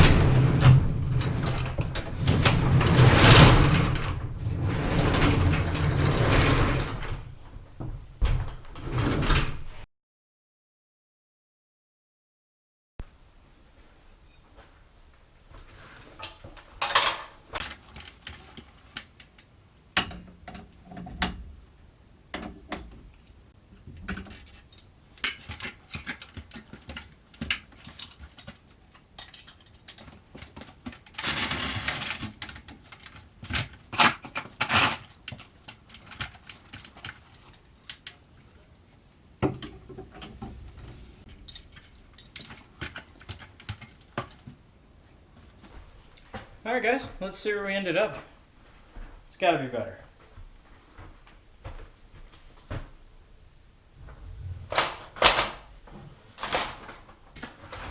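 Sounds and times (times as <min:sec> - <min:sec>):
metal bars clinking and knocking: 0:17.6 - 0:45.7
metal scraping: 0:17.6 - 0:45.7.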